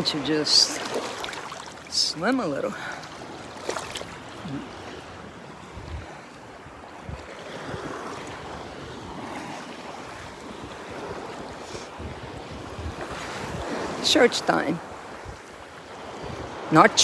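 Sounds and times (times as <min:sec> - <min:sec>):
sea water lapping: 0:00.0 - 0:17.0
wind buffeting microphone: 0:04.1 - 0:17.0.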